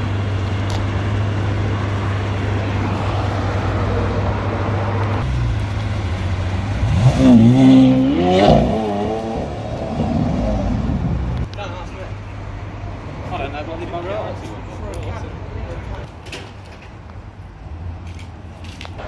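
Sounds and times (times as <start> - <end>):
car engine droning: 0.0 - 11.5
engine revving: 1.2 - 11.5.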